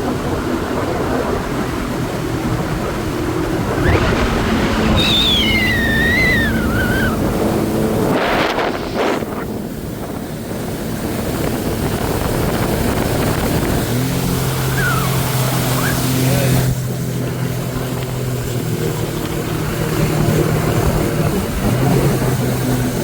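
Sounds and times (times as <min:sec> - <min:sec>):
jet ski engine running: 0:00.0 - 0:23.0
rushing water: 0:00.0 - 0:23.0
wind on microphone: 0:00.0 - 0:23.0
high wavering tone: 0:05.0 - 0:07.3, 0:14.7 - 0:16.2.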